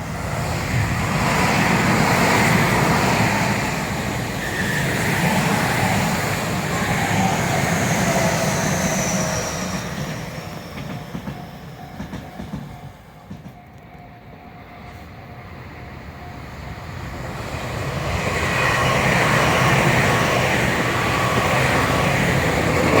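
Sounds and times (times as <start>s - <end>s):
electric train passing: 0.0s - 23.0s.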